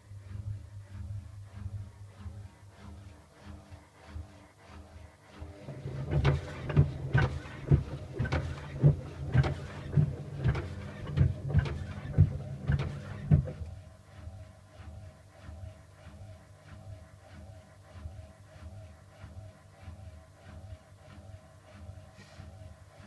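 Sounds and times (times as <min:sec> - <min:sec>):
low motor hum: 0:00.0 - 0:23.0
washing machine knocking and banging: 0:05.6 - 0:13.8.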